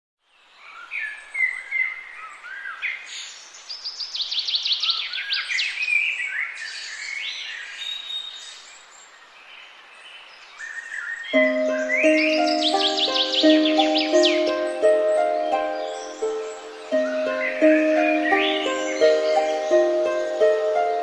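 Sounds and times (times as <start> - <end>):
songbirds singing and chirping: 0.2 - 21.0
faint steady hiss: 11.4 - 21.0.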